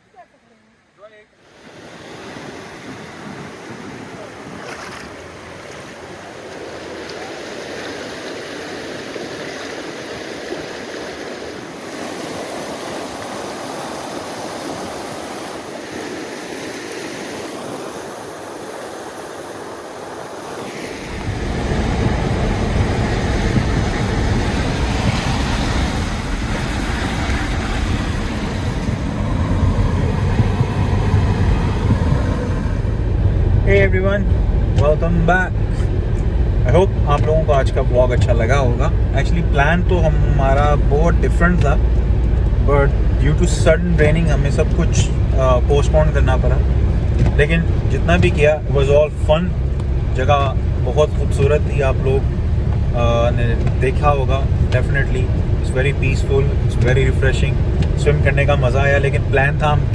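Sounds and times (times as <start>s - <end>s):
stream water rushing: 1.4s - 59.9s
loud low rumble: 21.0s - 51.5s.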